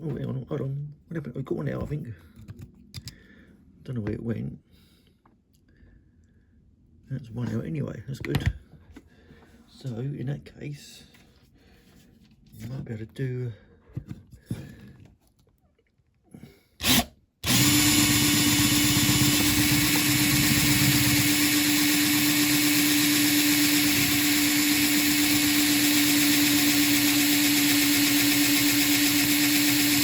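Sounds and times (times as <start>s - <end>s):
electric drill drilling into metal: 16.8s - 30.0s.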